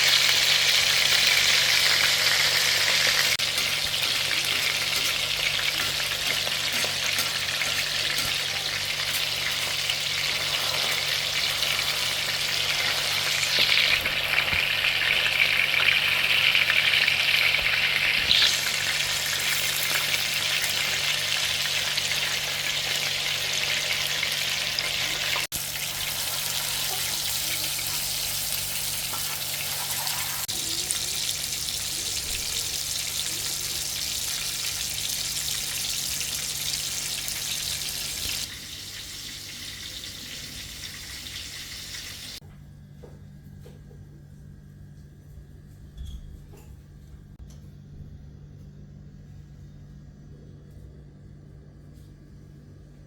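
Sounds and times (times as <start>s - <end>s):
kebabs sizzling in hot oil: 0.0s - 42.4s.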